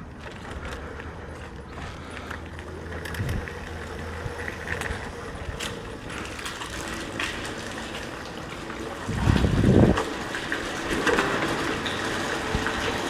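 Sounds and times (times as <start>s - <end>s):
chain and drivetrain rattle: 0.0s - 8.2s
tyres splashing through water: 0.0s - 13.0s
water rush: 3.5s - 13.0s.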